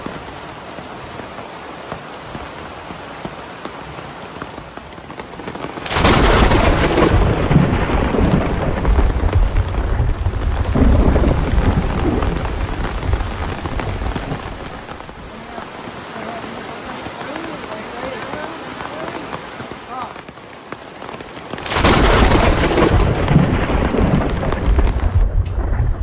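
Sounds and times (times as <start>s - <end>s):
heavy rain: 0.0s - 26.0s
thunderclap rumbling: 5.8s - 16.0s, 21.6s - 26.0s.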